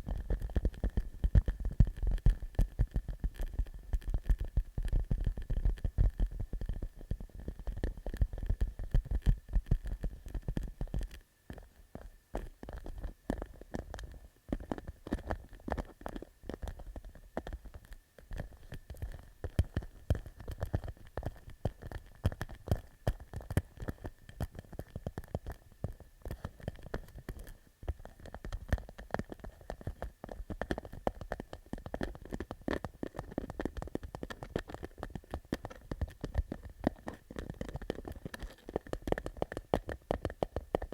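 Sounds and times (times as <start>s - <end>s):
fingertips tapping on plastic pouch: 12.4s - 40.9s.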